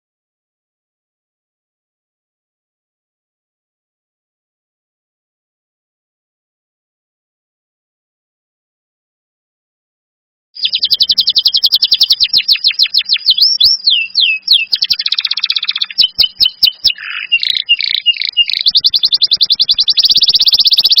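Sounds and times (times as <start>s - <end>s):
songbird singing fast trills: 10.6s - 21.0s.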